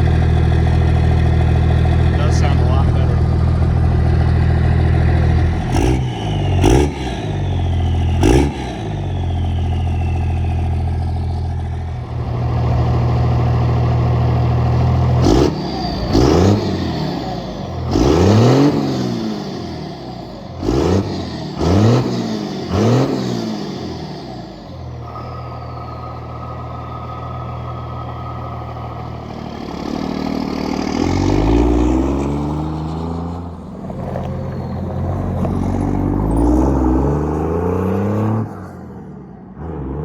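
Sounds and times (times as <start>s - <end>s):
diesel engine idling and revving: 0.0s - 40.0s
faint falling turbo whistle: 5.4s - 12.1s.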